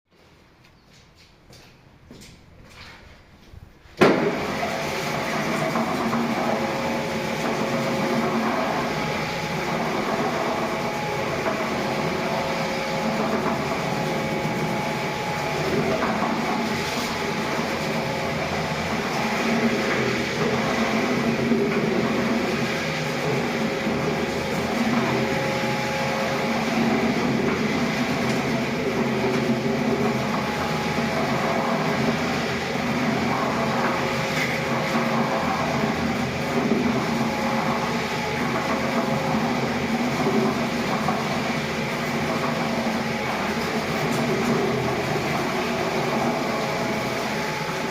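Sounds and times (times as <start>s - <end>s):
floor polishing machine hum: 3.8s - 47.9s.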